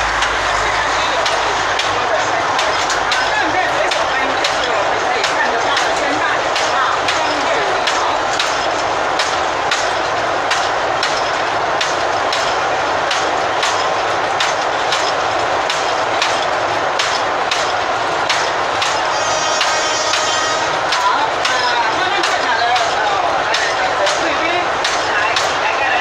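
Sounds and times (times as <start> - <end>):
train rumble: 0.0 - 26.0
train wheels clacking on rail joints: 0.0 - 26.0.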